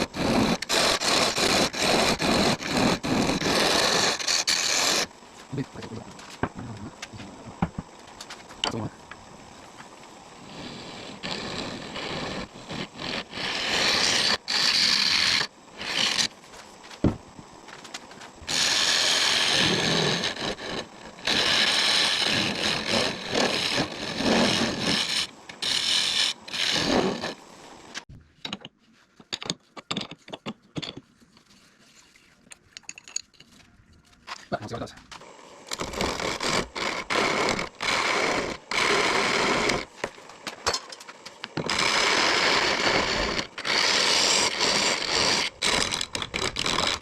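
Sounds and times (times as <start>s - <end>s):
lathe tool cutting wood: 18.5s - 27.4s, 41.6s - 47.0s.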